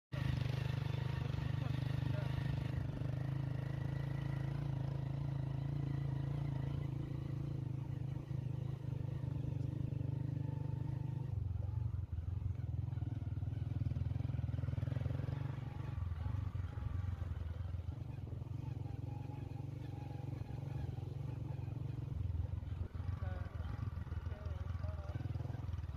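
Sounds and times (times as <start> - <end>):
vehicle engine humming: 0.1 - 25.9.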